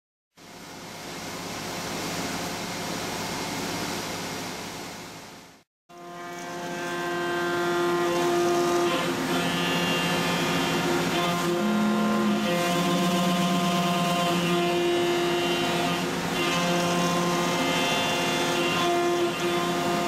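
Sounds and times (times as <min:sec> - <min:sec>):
machine cutting metal: 0:05.9 - 0:20.0
machine whine of several tones: 0:05.9 - 0:20.0.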